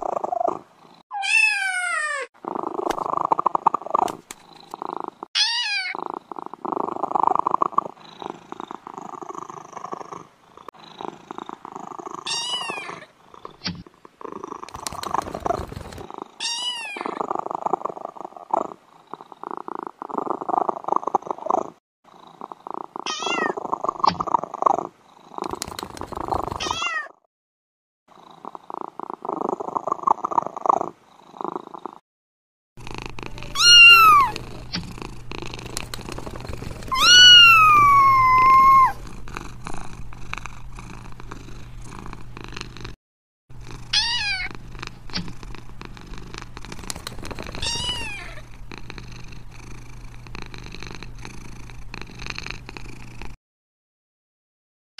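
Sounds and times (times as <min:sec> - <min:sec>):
kitten purring: 0:00.0 - 0:01.0, 0:02.4 - 0:05.3, 0:05.9 - 0:26.8, 0:28.1 - 0:32.0, 0:32.8 - 0:53.4
kitten meowing: 0:01.1 - 0:02.3, 0:05.4 - 0:06.0, 0:23.1 - 0:23.6, 0:33.4 - 0:34.4, 0:36.9 - 0:39.0, 0:44.0 - 0:44.5, 0:47.6 - 0:48.4.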